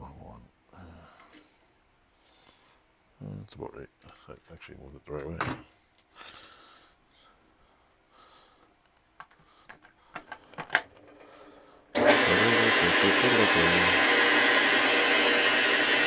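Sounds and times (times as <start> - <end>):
metal lathe whirring: 12.0 - 16.0.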